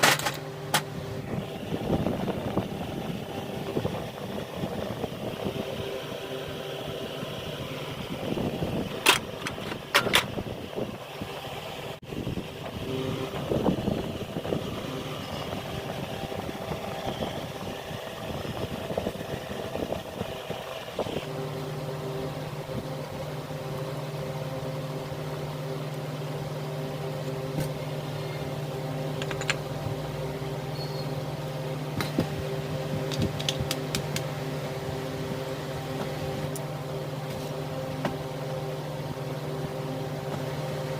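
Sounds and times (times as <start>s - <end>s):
workshop clatter and handling: 0.0s - 1.0s, 8.9s - 10.4s
steady machine hum: 0.0s - 40.9s.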